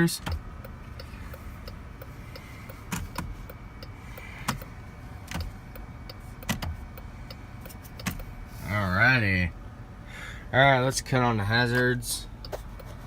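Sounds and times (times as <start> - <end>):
turn signal ticking: 0.0 - 8.8, 11.7 - 13.0.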